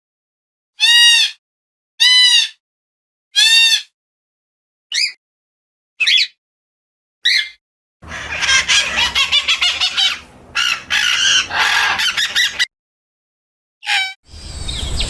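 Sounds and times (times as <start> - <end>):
bird chirp: 7.2 - 12.7, 14.3 - 15.0
birds chattering and clucking: 8.0 - 12.7.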